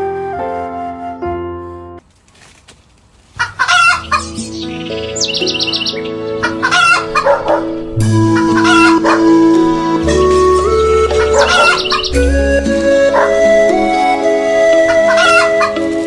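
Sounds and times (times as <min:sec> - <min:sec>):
soft background music: 0:00.0 - 0:02.0, 0:03.7 - 0:16.0
chickens clucking: 0:03.4 - 0:16.0
rooster crowing: 0:06.4 - 0:09.8, 0:11.1 - 0:12.2, 0:14.9 - 0:15.8.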